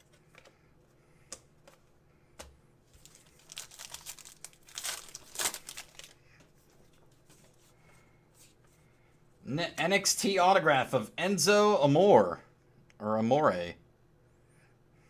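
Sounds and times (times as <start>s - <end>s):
crinkly wrapper torn open: 3.0s - 6.2s.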